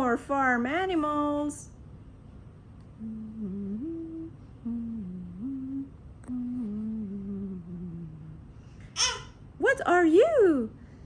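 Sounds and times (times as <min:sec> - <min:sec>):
woman humming a slow tune: 0:03.0 - 0:08.5.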